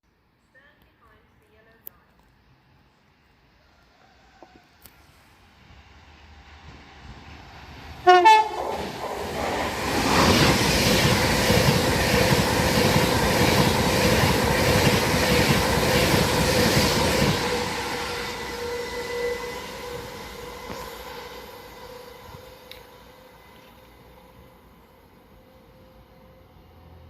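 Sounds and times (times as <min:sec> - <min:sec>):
train passing with loud rush: 0:02.4 - 0:27.0
train horn blast: 0:08.0 - 0:08.8, 0:17.5 - 0:24.5.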